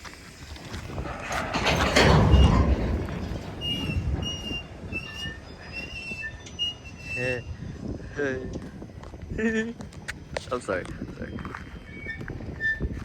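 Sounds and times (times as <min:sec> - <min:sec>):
freight train rolling past: 0:00.0 - 0:07.8
high-pitched wheel squeals: 0:01.0 - 0:07.9, 0:11.2 - 0:13.0.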